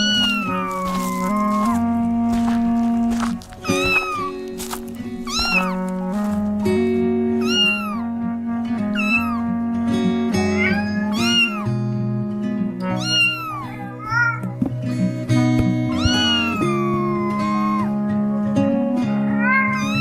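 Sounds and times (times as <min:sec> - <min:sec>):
cat meowing: 0:00.0 - 0:01.8, 0:03.6 - 0:04.5, 0:05.2 - 0:06.3, 0:07.4 - 0:08.1, 0:09.0 - 0:09.5, 0:10.6 - 0:11.8, 0:12.8 - 0:14.6, 0:15.9 - 0:18.0, 0:19.3 - 0:20.0
background music with held notes: 0:00.0 - 0:20.0.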